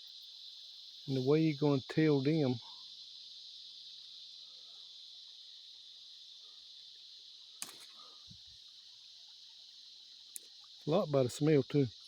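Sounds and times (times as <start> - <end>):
crickets and insects chirping: 0.0 - 12.0
sharp click: 7.6 - 8.0.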